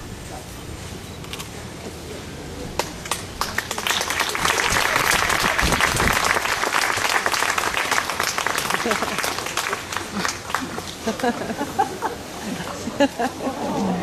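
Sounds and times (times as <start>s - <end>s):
crowd applauding: 2.8s - 12.0s.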